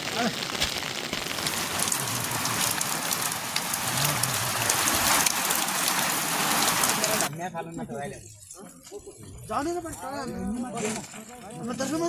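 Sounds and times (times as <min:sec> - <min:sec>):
rain on a hard surface: 0:00.0 - 0:10.3.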